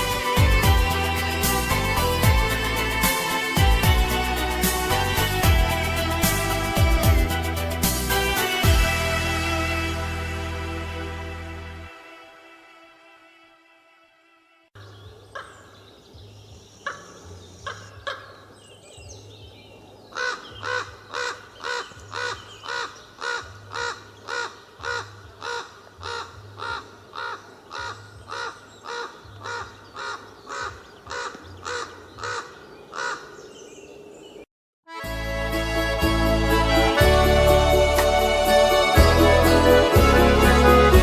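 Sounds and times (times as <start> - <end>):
bird calling: 14.8 - 19.2, 19.8 - 34.4.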